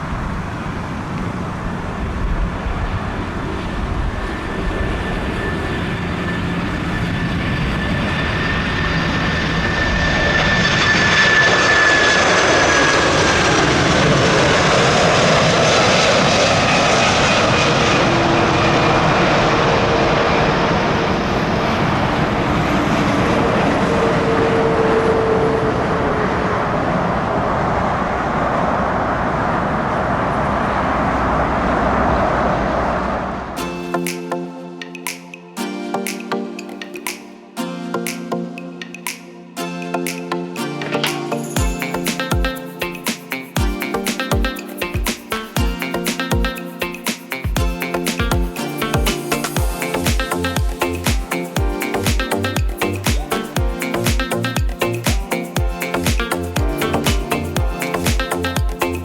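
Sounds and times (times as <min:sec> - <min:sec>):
jet airliner engines passing: 0:00.0 - 0:34.3
high whining tones: 0:02.8 - 0:37.0.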